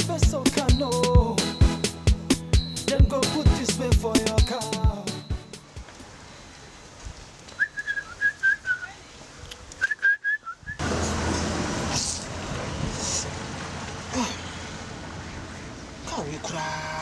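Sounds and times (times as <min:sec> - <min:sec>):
person whistling: 0:00.5 - 0:05.6, 0:09.8 - 0:10.8.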